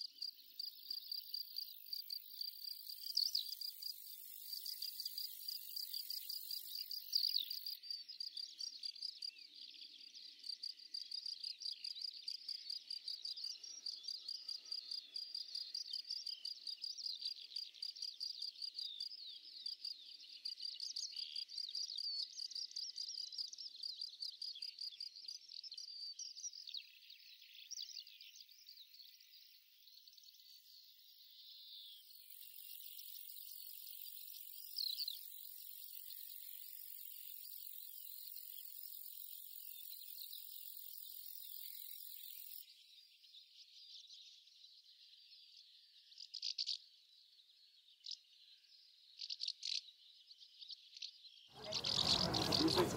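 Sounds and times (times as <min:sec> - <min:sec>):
crickets chirping: 0:00.0 - 0:16.7, 0:51.6 - 0:52.9.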